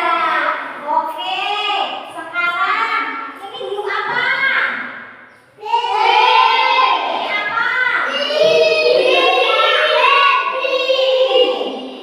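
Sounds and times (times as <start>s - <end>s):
children singing: 5.6s - 12.0s.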